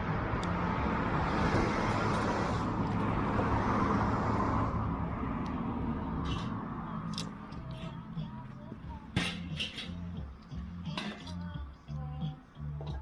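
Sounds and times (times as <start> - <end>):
car passing by: 0.0 - 8.7.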